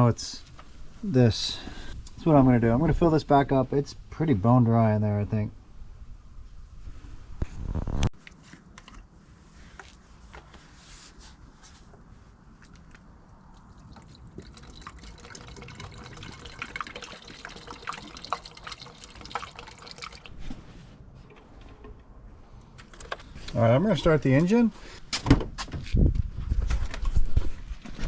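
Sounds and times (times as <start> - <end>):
liquid pouring into a tank: 13.6 - 20.4.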